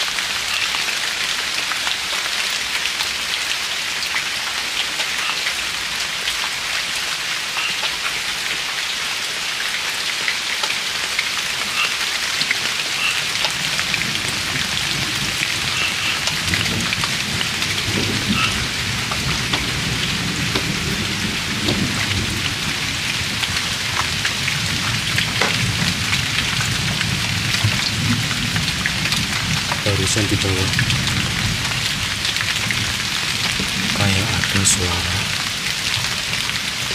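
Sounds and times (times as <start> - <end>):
steady rain: 0.0 - 36.9
rolling thunder rumble: 14.0 - 36.8.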